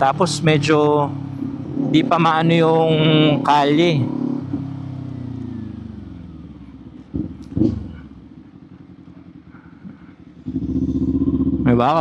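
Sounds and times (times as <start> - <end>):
motorcycle engine and exhaust: 0.0 - 12.0
motorcycle throttle blips: 4.0 - 12.0.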